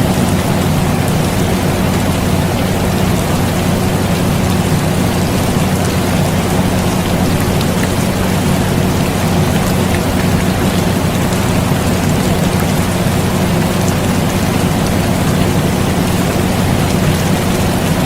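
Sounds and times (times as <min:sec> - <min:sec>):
air conditioner hum: 0:00.0 - 0:18.0
rain hissing: 0:00.0 - 0:18.0.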